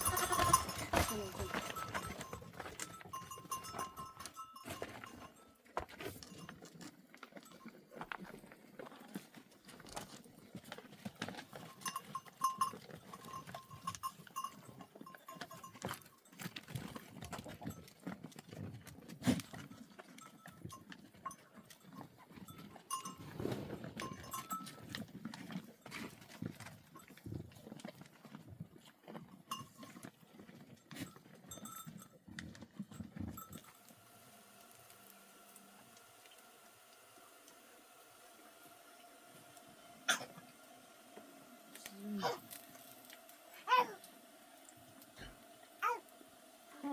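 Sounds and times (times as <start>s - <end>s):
animal bells clinking: 0.0s - 10.1s, 10.8s - 34.6s.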